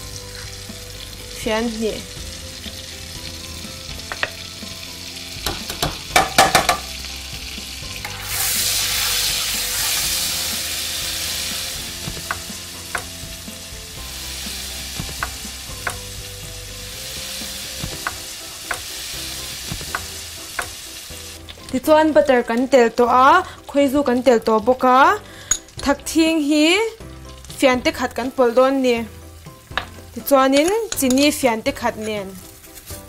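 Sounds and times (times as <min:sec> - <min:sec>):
butter sizzling in a pan: 0:00.0 - 0:33.0
spoon clicking against pan: 0:30.6 - 0:31.3.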